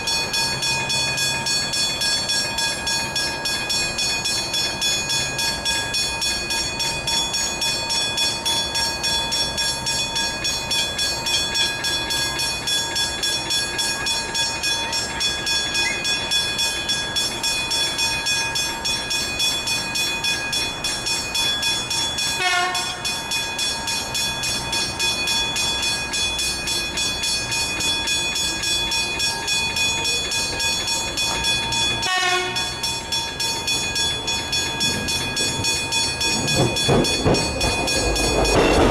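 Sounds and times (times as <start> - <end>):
level crossing bells ringing: 0.0 - 38.9
train passing: 0.0 - 38.9
train whine: 0.0 - 38.9.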